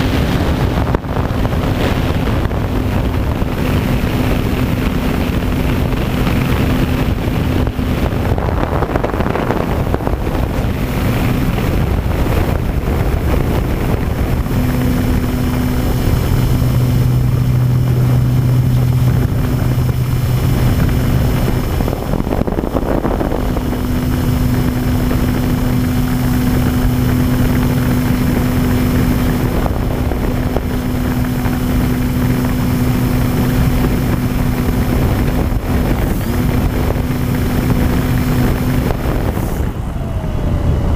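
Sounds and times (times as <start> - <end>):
wind rushing on microphone: 0.0 - 40.9
model plane electric motor hum: 9.0 - 39.7.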